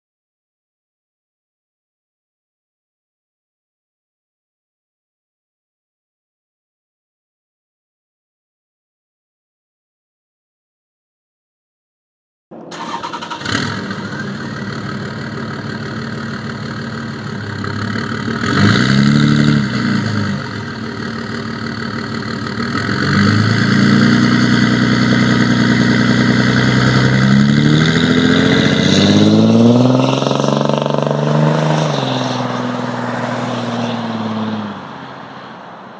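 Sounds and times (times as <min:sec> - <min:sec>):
diesel truck engine idling and revving: 0:12.7 - 0:35.4.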